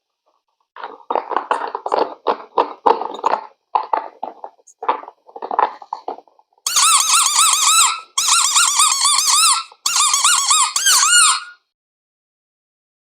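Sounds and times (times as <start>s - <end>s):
wobbling high squeaking: 6.7s - 11.6s.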